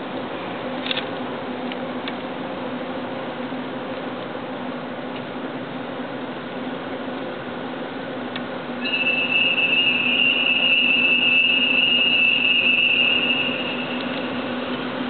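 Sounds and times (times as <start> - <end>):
diesel locomotive low hum: 0.0 - 15.0
train wheels squealing on rails: 8.8 - 15.0.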